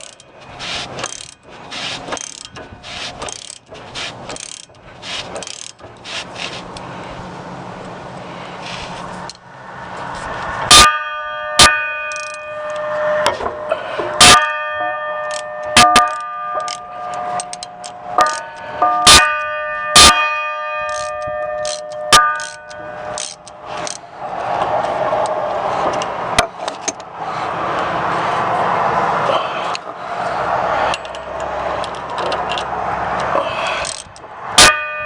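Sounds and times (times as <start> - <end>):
small metal bell ringing: 14.3 - 23.4.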